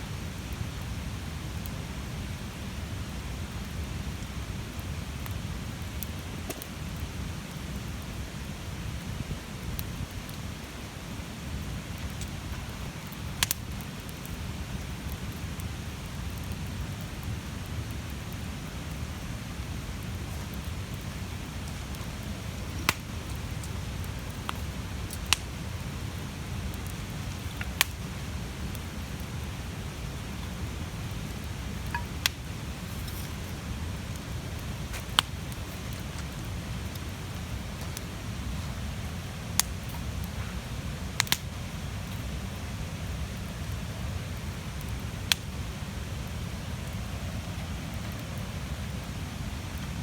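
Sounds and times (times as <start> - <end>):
rush of flames: 0.0 - 50.0
burning wood popping and cracking: 4.7 - 7.9, 9.7 - 42.4, 44.4 - 46.3.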